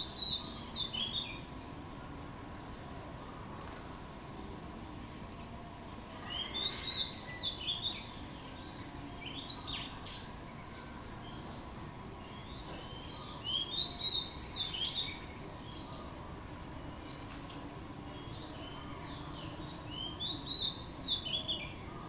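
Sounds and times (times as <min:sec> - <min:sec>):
bird chirping and twittering: 0:00.0 - 0:01.5, 0:06.0 - 0:11.6, 0:12.2 - 0:16.0, 0:17.0 - 0:22.0.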